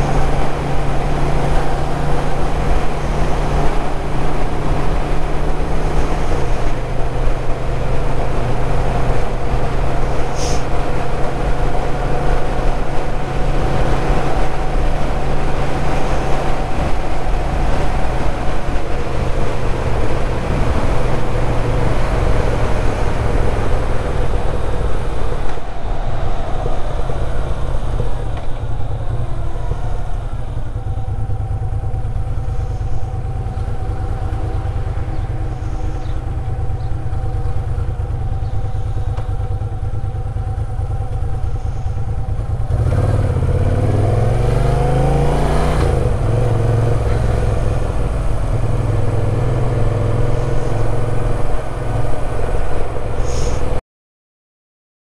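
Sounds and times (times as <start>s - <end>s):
wind rush: 0.0s - 53.8s
motorcycle engine running: 11.0s - 52.3s.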